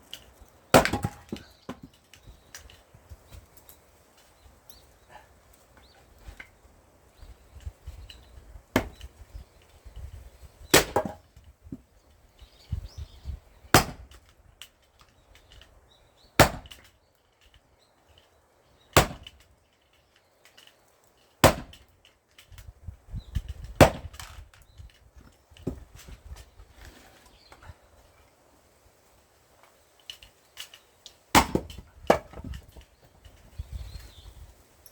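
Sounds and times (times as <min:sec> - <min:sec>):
axe chopping firewood: 0:00.7 - 0:02.0, 0:08.7 - 0:09.2, 0:10.6 - 0:11.8, 0:13.7 - 0:14.2, 0:16.4 - 0:16.9, 0:18.9 - 0:19.4, 0:21.4 - 0:21.9, 0:23.7 - 0:24.3, 0:31.3 - 0:32.8.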